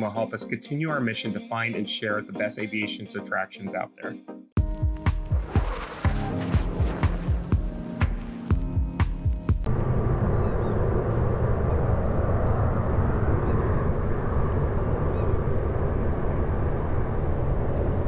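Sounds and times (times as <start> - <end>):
jet engines rumbling: 9.7 - 18.0.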